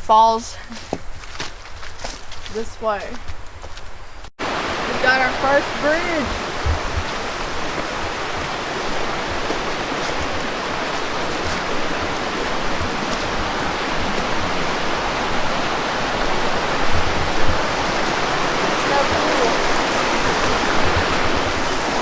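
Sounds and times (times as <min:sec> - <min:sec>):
creek water rushing: 0:04.4 - 0:22.0.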